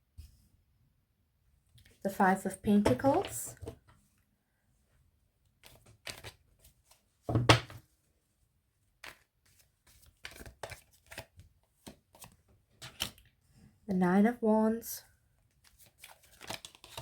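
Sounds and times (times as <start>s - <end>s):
cards sliding and tapping: 5.6s - 7.0s, 9.0s - 13.2s.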